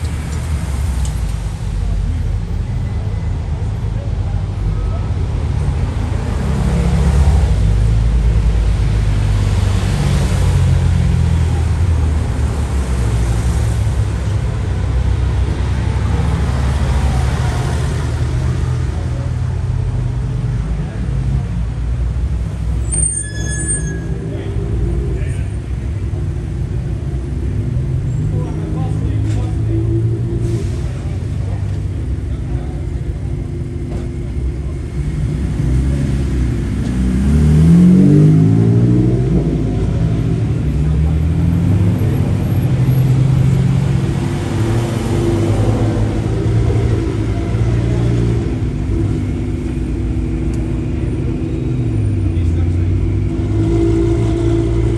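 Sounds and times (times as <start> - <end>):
car engine and road rumble: 0.0 - 54.9.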